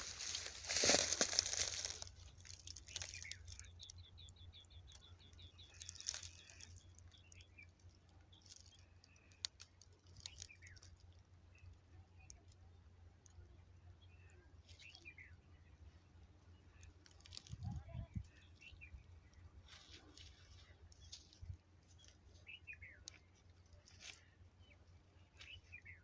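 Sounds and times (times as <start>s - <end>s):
rustling: 0.0s - 3.6s.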